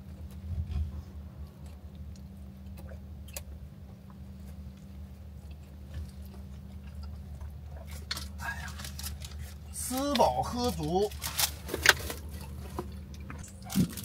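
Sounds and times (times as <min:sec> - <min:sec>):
steady low hum: 0:00.0 - 0:14.0
chewing sandwich: 0:00.1 - 0:09.8.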